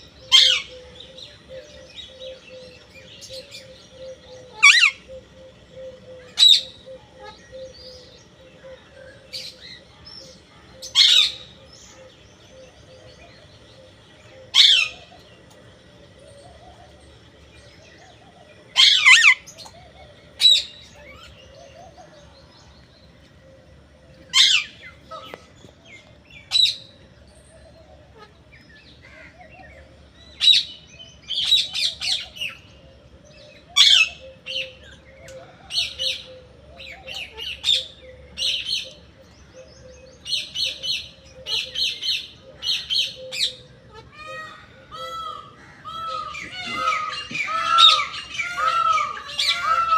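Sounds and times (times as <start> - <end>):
parrot calling: 3.3 - 8.0, 10.8 - 11.5, 14.4 - 15.2, 18.7 - 22.0, 24.3 - 25.4, 40.3 - 49.9.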